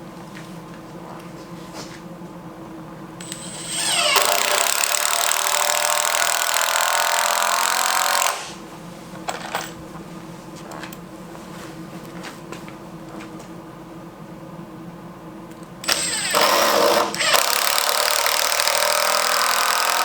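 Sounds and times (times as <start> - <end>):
power tool whining: 3.2 - 8.6, 15.8 - 20.0.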